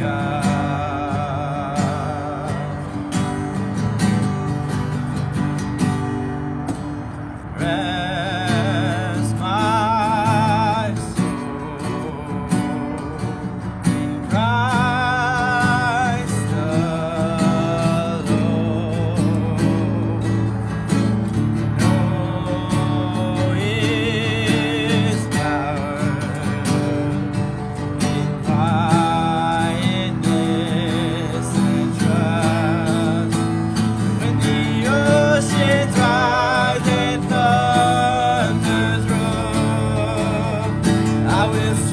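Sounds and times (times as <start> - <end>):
person singing with vibrato: 0.0 - 3.8, 7.4 - 41.9
strummed acoustic guitar: 0.0 - 41.9.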